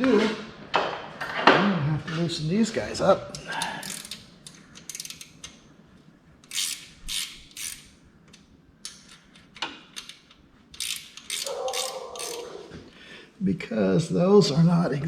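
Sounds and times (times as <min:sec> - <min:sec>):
ratchet wrench clicking: 0:03.6 - 0:05.6, 0:06.4 - 0:12.5.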